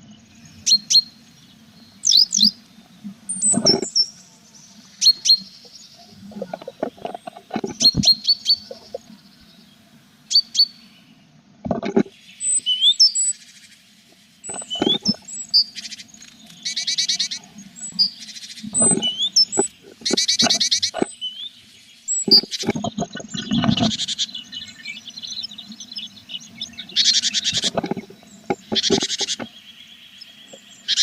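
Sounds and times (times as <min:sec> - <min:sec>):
birds scuffling in nest box: 0:03.4 - 0:04.0, 0:06.3 - 0:09.0, 0:14.4 - 0:15.2, 0:18.8 - 0:21.1, 0:22.3 - 0:24.1, 0:27.4 - 0:29.5
thin gliding chirps: 0:14.3 - 0:21.4.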